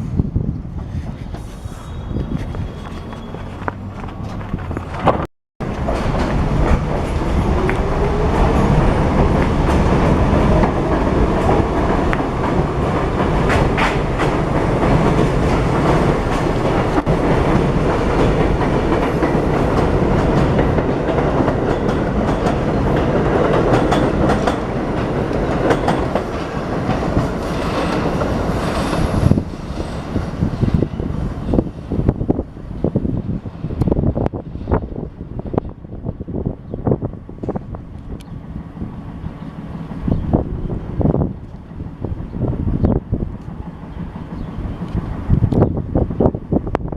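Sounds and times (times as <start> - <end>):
train wheels clattering over rails: 2.4 - 33.0.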